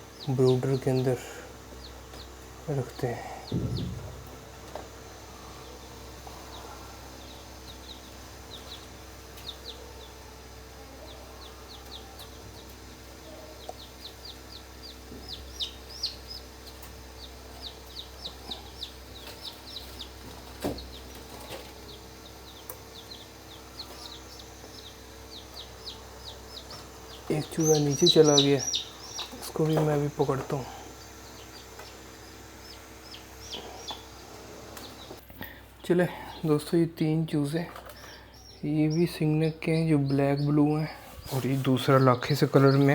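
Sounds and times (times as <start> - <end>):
chicks peeping: 0.0 - 42.9
steady low hum: 0.0 - 42.9
single knock: 3.5 - 4.8.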